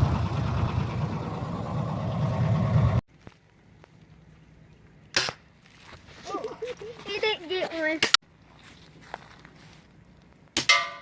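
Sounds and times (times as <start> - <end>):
vehicle ride rumble: 0.0 - 3.0.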